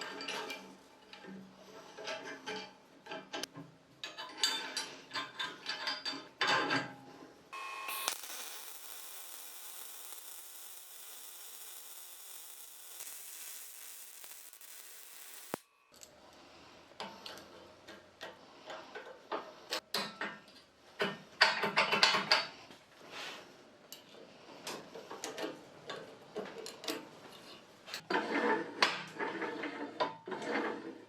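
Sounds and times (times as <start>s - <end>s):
steady hissing: 7.6s - 15.7s.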